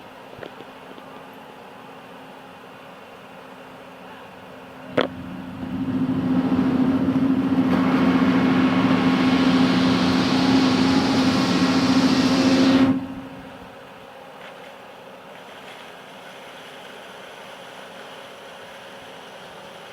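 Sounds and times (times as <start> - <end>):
backhoe engine running: 4.9 - 13.7.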